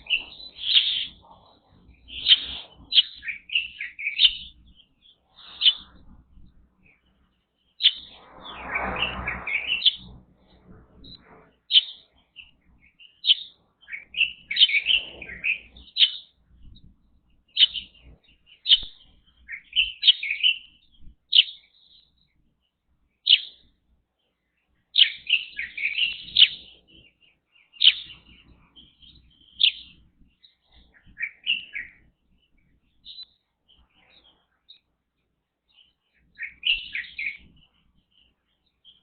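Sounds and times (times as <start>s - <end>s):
songbirds chirping: 0.0s - 39.0s.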